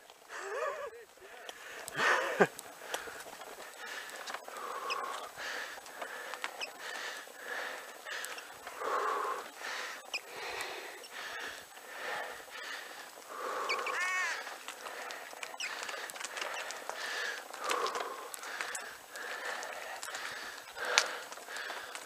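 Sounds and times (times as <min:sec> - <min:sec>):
person breathing hard: 0:00.2 - 0:22.0.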